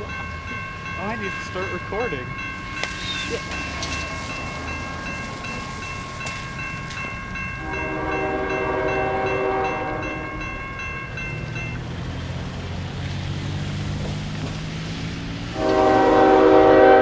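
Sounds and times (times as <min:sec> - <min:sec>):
high pulsing ringing: 0:00.0 - 0:11.9
diesel locomotive rumble: 0:00.0 - 0:17.0
train horn blowing: 0:07.6 - 0:10.6, 0:15.4 - 0:17.0.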